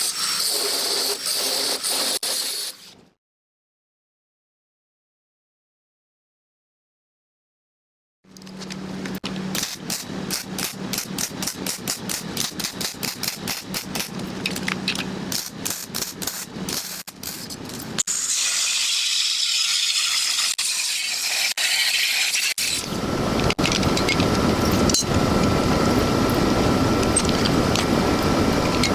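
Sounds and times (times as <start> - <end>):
angle grinder whine: 22.6 - 28.9.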